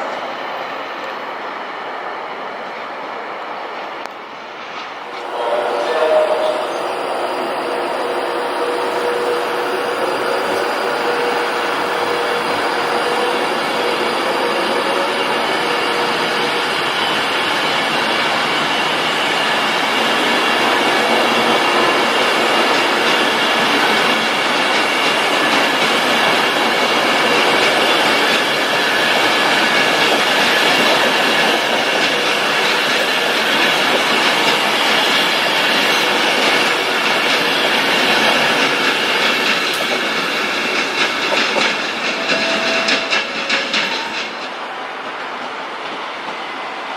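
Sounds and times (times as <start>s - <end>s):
train rumbling on rails: 0.0s - 46.9s
high-pitched tones: 5.1s - 17.8s.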